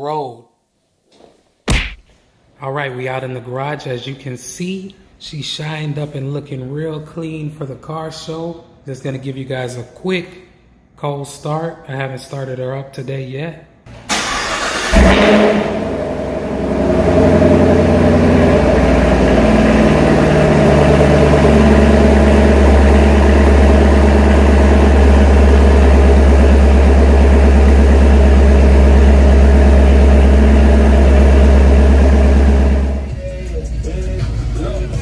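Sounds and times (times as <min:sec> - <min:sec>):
engine rev flare and idle: 0:14.1 - 0:34.8.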